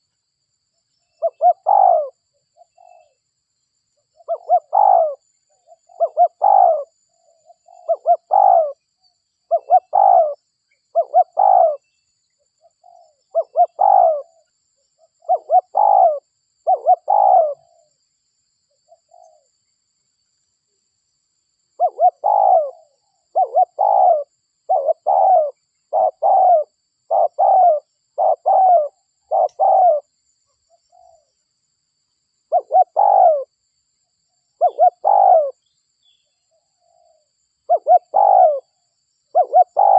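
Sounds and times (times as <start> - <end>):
dove cooing: 1.2 - 3.2, 4.2 - 8.8, 9.5 - 11.9, 12.6 - 14.4, 15.0 - 17.9, 21.8 - 30.1, 32.5 - 33.5, 34.6 - 35.6, 36.8 - 39.9.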